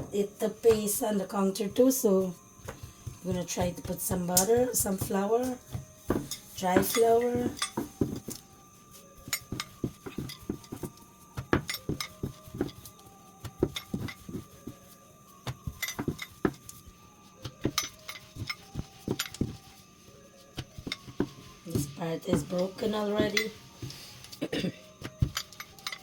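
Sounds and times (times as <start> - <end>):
rolling pin knocking on counter: 2.6 - 8.4, 15.5 - 16.7.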